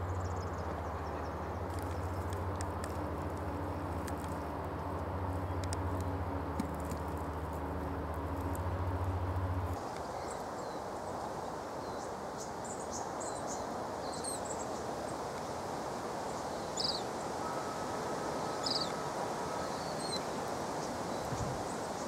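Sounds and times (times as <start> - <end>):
steady outdoor hiss: 0.0 - 22.0.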